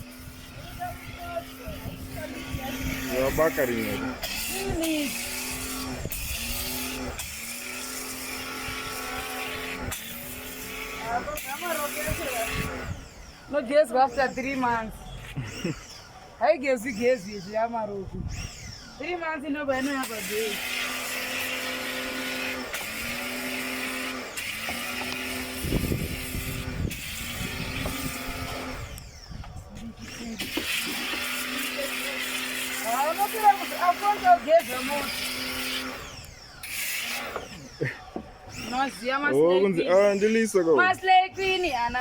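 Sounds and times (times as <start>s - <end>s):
motor humming: 0.0s - 42.0s.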